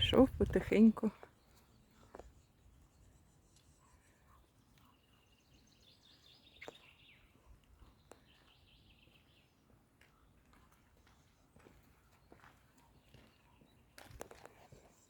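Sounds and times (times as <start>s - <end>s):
small bird chirping trills: 0.0s - 10.2s.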